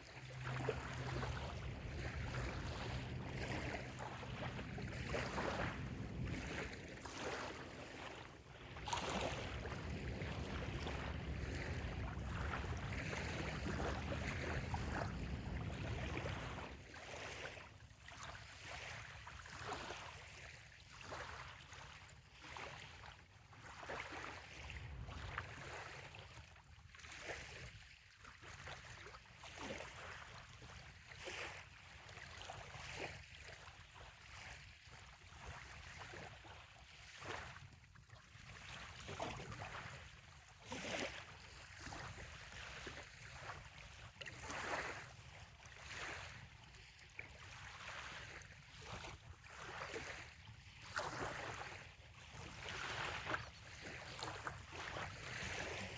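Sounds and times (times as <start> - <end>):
small waves lapping at shore: 0.0 - 55.9
low engine-like drone: 0.3 - 7.9.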